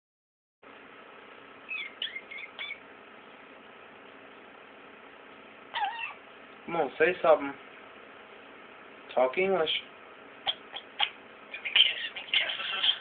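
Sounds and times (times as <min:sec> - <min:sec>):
starling chirping: 0:01.6 - 0:02.9, 0:10.4 - 0:13.0.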